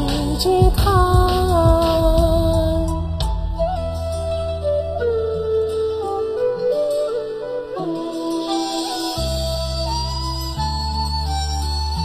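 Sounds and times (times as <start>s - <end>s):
deep bass note: 0.0s - 4.6s
ballad backing track: 0.0s - 12.0s.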